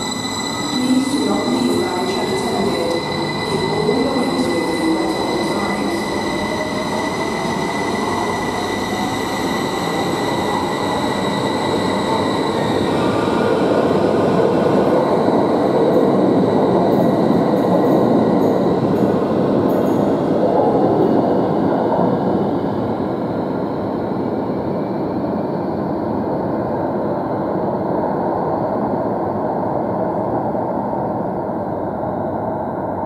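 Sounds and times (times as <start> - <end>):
electric train whining: 0.0 - 19.1.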